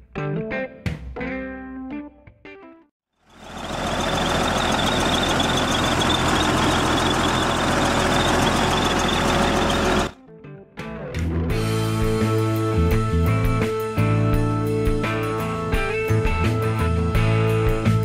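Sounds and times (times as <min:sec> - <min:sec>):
diesel engine running: 0:03.3 - 0:10.2.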